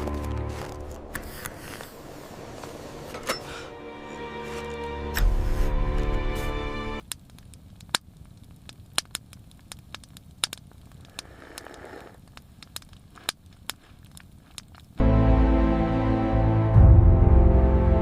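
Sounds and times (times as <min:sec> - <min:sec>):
music: 0:00.0 - 0:07.0, 0:15.0 - 0:18.0
wood fire crackling: 0:00.0 - 0:15.0.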